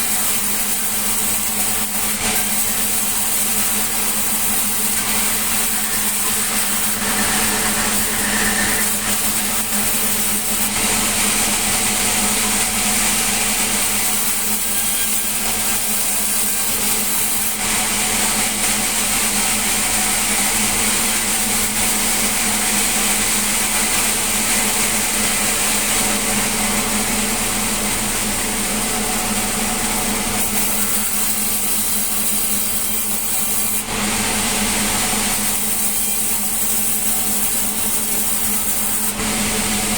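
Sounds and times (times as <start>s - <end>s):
saw blade cutting log: 0.0s - 17.6s, 28.6s - 33.9s, 35.3s - 39.2s
sawmill machine hum: 0.0s - 39.9s.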